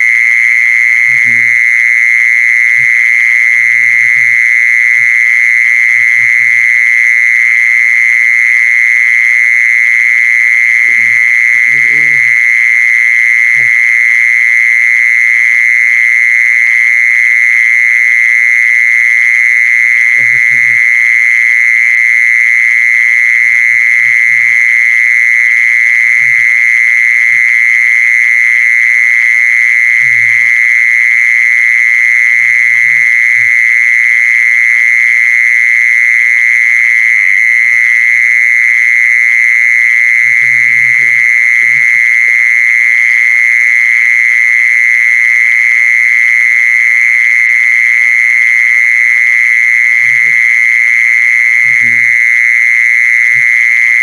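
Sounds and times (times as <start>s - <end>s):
insect high-pitched trill: 0.0s - 54.0s.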